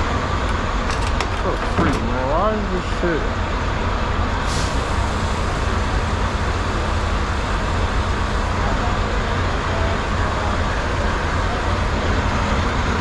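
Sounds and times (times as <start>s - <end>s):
truck diesel engine rumbling: 0.0s - 13.0s
brief air hiss: 4.5s - 5.4s.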